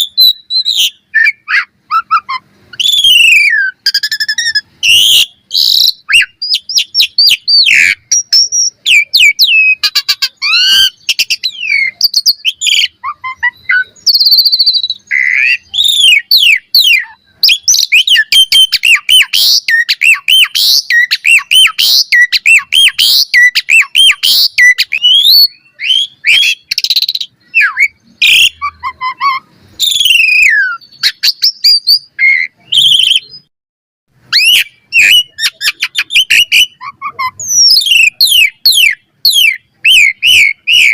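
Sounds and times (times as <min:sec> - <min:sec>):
starling singing: 0:00.0 - 0:33.5, 0:34.2 - 0:40.9.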